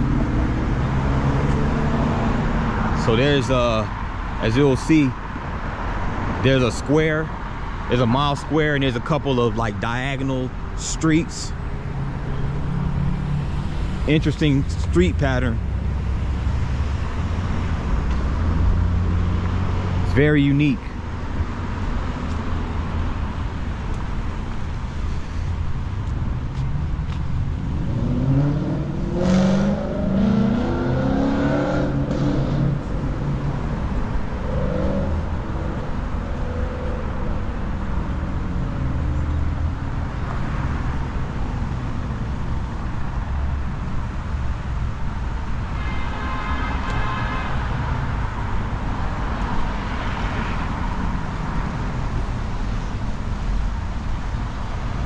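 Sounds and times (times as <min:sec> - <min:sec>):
vehicle passing by: 0:00.0 - 0:03.8, 0:11.3 - 0:20.3, 0:24.8 - 0:41.9
rumble of street traffic: 0:00.0 - 0:55.0.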